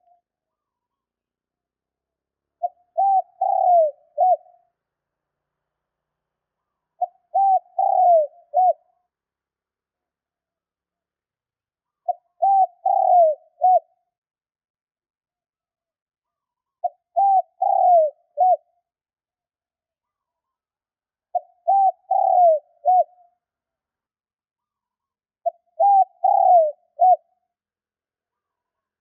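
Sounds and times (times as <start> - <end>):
dove cooing: 2.6 - 4.6, 7.0 - 8.9, 12.0 - 14.0, 16.3 - 18.8, 21.3 - 23.2, 25.4 - 27.3.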